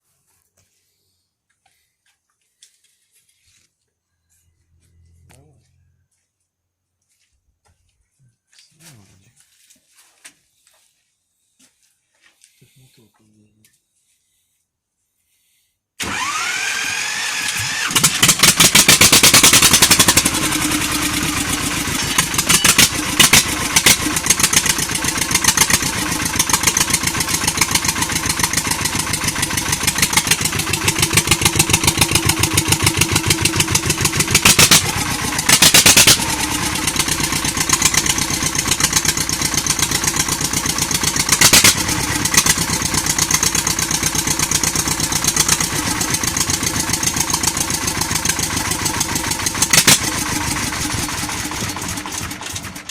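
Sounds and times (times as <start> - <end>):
starter motor whine: 16.0 - 52.9
tractor diesel engine knocking: 16.0 - 52.9.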